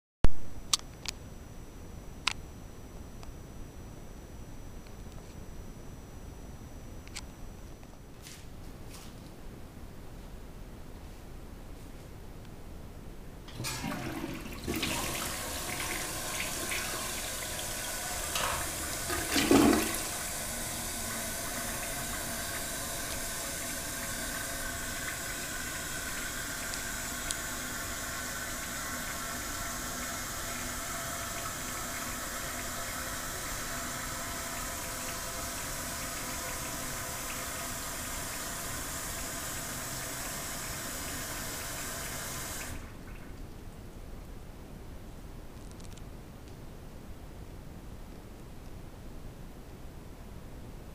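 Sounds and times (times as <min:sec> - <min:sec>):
faint fill valve whine: 0:00.4 - 0:08.4, 0:13.2 - 0:44.0
toilet tank refilling hiss: 0:13.5 - 0:43.2
toilet flushing: 0:13.5 - 0:43.4.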